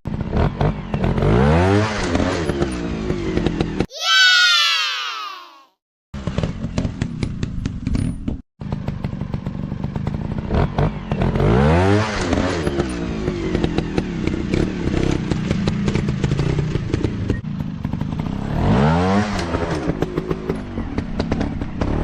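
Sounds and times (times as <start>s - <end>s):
dirt bike engine revving: 0.1s - 3.8s.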